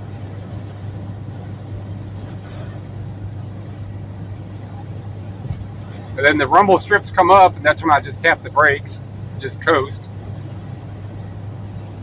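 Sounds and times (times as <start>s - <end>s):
car engine hum: 0.0s - 12.0s.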